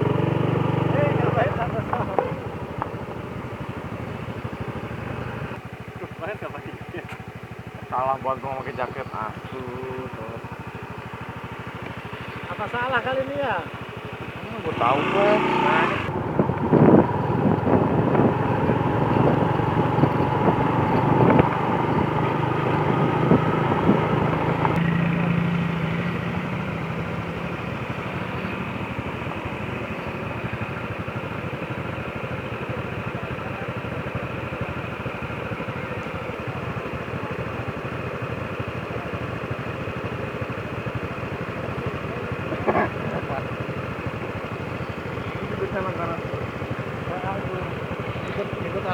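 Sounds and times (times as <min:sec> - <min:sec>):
motorcycle engine running: 0:00.0 - 0:48.9
road and wind noise: 0:00.0 - 0:48.9.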